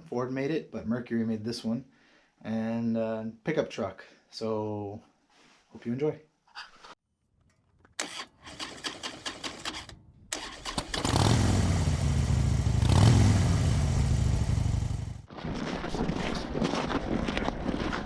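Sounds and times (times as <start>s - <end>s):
engine starting and running: 7.4s - 15.3s.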